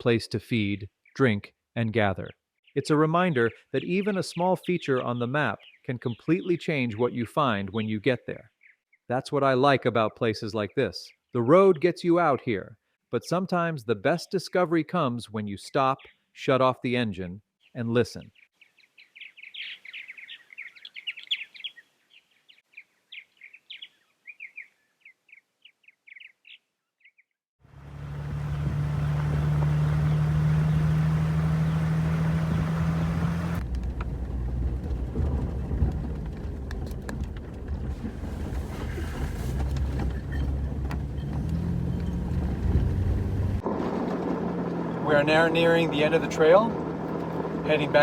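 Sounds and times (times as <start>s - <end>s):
songbird chirping: 0.8s - 9.4s, 17.4s - 33.6s, 39.7s - 43.6s
vehicle driving on gravel: 27.6s - 48.0s.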